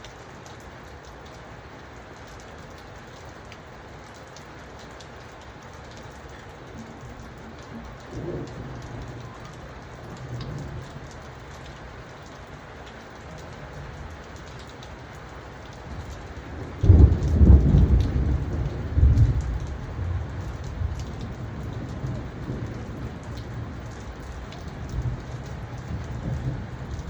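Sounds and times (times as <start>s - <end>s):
steady rain falling: 0.0s - 27.0s
thunder rumbling: 7.2s - 11.2s, 16.5s - 27.0s.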